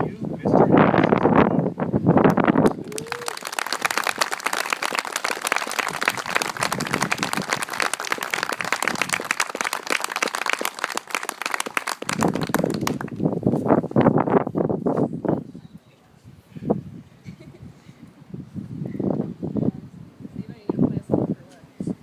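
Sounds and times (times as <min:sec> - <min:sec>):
crowd clapping: 0:02.3 - 0:13.3
crowd cheering: 0:02.6 - 0:13.2.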